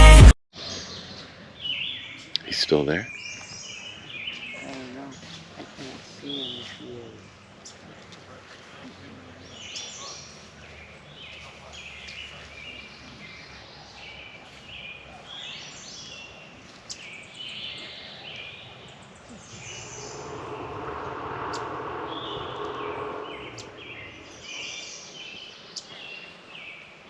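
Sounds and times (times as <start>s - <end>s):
steady rush of noise: 19.4s - 24.8s.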